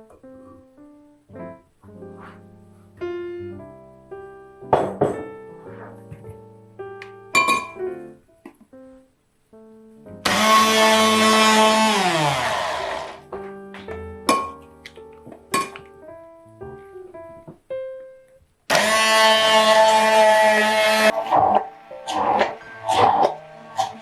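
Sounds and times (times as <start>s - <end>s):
soft piano music: 0.0s - 10.3s, 13.2s - 18.7s, 21.1s - 24.0s
blender motor running: 10.2s - 13.2s, 18.7s - 21.1s.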